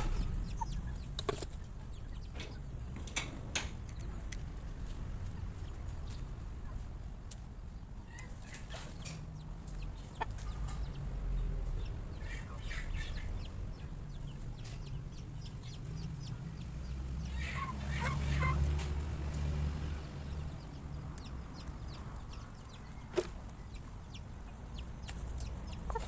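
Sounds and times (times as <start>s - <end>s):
low rumble: 0.0s - 7.8s
chickens clucking: 0.0s - 26.0s.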